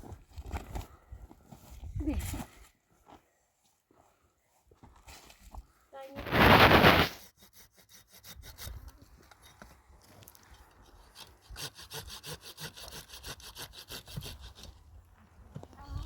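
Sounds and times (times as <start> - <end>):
rasping saw strokes: 6.5 - 9.4, 10.8 - 14.8.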